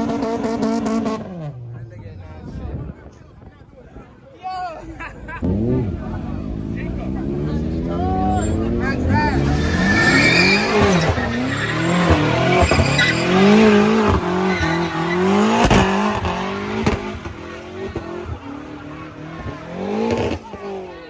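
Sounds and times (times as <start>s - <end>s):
car engine revving: 0.0s - 2.2s, 4.8s - 21.0s
tyres squealing: 8.1s - 20.8s.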